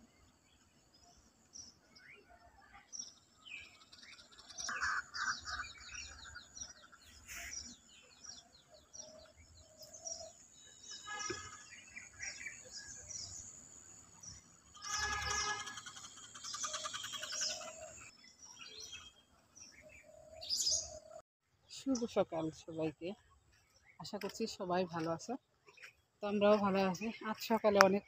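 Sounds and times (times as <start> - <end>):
birds chirping and trilling: 0.0 - 21.2, 21.8 - 28.0
harsh bird call: 14.8 - 18.0.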